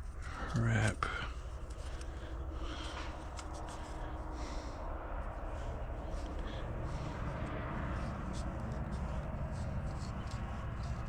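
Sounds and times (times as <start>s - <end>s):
hands rustling with parts: 0.0s - 11.0s
low hum: 0.0s - 11.0s.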